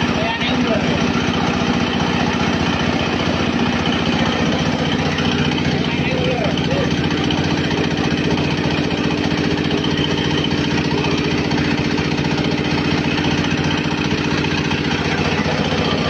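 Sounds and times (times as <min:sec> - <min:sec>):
pellet mill pulsing hum: 0:00.0 - 0:16.0.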